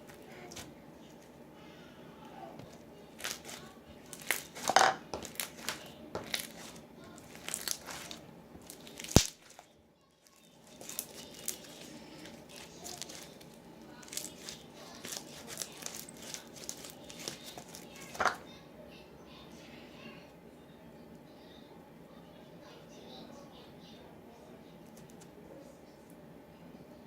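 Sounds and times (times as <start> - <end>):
slime crackling and popping: 3.2 - 9.7, 10.6 - 18.2.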